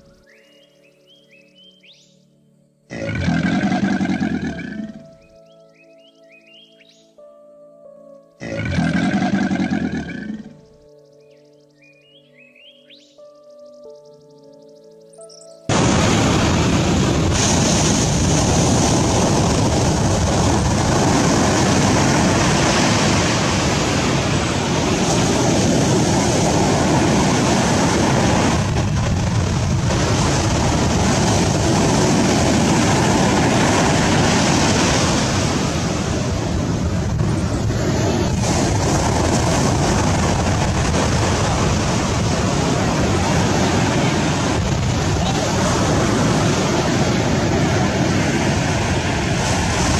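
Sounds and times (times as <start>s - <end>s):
water rushing: 15.7s - 49.9s
wind buffeting microphone: 15.7s - 49.9s
wind rushing: 15.7s - 49.9s.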